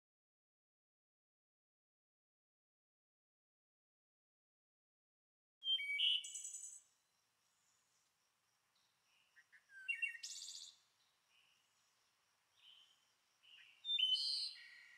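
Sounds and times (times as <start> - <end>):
bird chirping: 5.6 - 8.1, 8.7 - 14.9.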